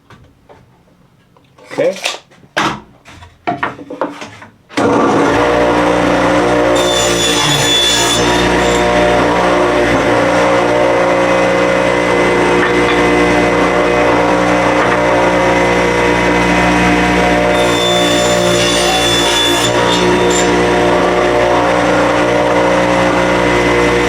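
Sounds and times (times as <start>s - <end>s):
table saw ripping wood: 4.8s - 24.0s.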